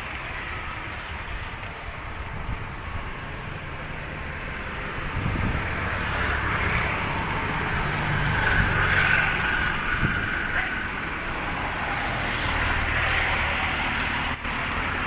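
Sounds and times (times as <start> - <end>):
car engine running: 0.0 - 12.3
tyres on road: 0.0 - 15.0.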